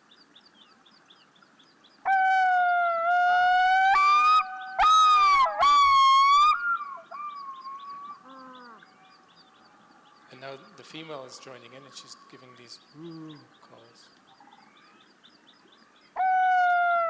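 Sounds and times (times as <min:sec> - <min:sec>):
divers wailing calls: 0:02.1 - 0:08.9
small bird chirping: 0:07.1 - 0:16.2.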